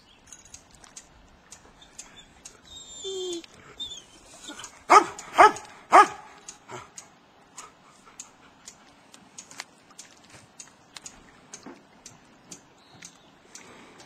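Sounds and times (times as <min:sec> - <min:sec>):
faint short ticks: 0:00.5 - 0:02.6, 0:04.5 - 0:14.0
dog yelping: 0:02.8 - 0:06.8
dog barking: 0:04.9 - 0:06.8.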